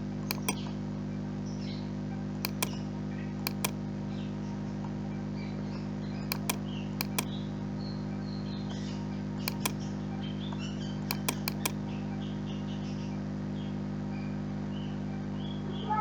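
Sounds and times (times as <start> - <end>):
computer mouse double-clicks: 0.3 - 0.6, 2.5 - 2.8, 3.5 - 3.8, 6.3 - 7.3, 9.5 - 9.8, 11.1 - 11.8.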